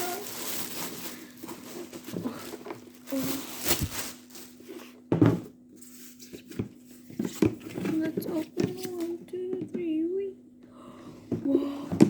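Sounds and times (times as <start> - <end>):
objects knocking and rustling: 0.0 - 9.8
faint steady hum: 0.0 - 12.0.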